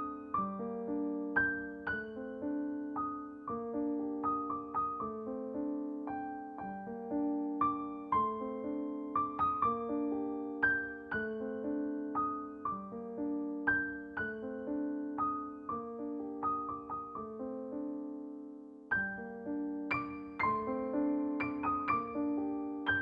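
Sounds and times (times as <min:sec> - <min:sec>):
slow piano melody: 0:00.0 - 0:23.0.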